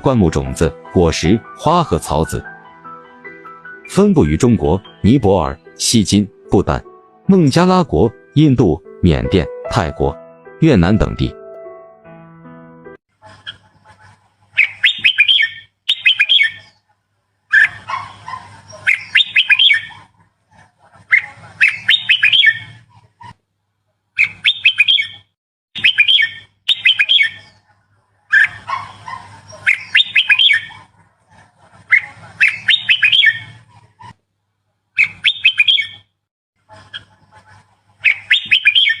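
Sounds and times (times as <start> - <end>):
bird singing bright phrases: 0.0 - 11.4, 14.6 - 16.9, 18.7 - 20.0, 21.2 - 22.8, 24.2 - 27.7, 29.5 - 30.8, 32.0 - 33.6, 35.0 - 36.1, 38.0 - 39.0.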